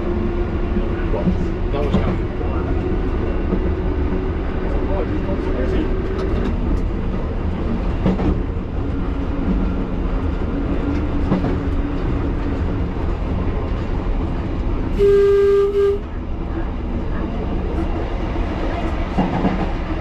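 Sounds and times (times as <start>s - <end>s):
train wheels and motors rumbling: 0.0s - 20.0s
loud steady tone: 15.0s - 16.1s.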